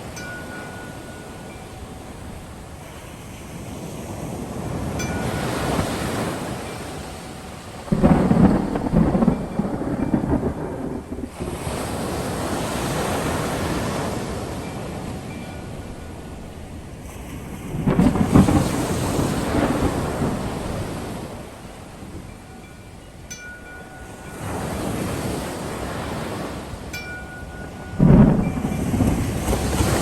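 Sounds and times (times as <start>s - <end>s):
breaking waves: 0.0s - 30.0s
thunderclap rumbling: 7.8s - 22.4s, 27.8s - 30.0s.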